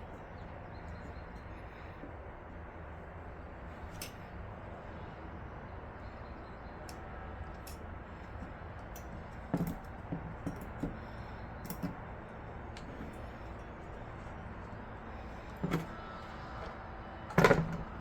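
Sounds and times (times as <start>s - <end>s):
steady low hum: 0.0s - 18.0s
clicks and knocks of computer parts: 17.3s - 18.0s.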